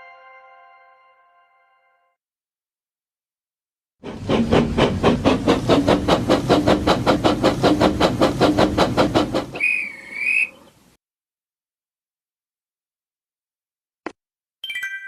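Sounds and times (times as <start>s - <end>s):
steam locomotive chuffing: 4.0s - 10.9s
wavering steam whistle: 9.3s - 10.8s.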